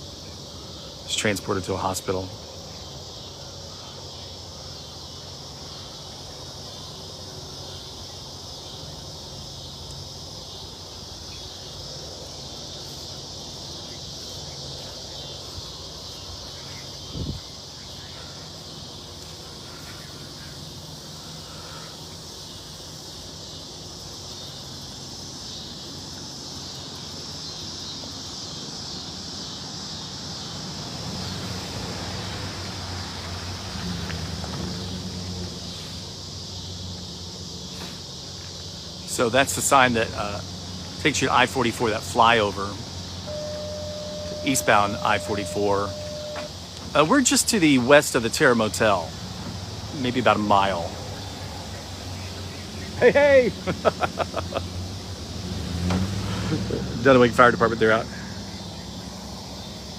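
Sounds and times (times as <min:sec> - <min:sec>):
crickets chirping: 0:00.0 - 0:59.9
low steady hum: 0:43.3 - 0:46.5.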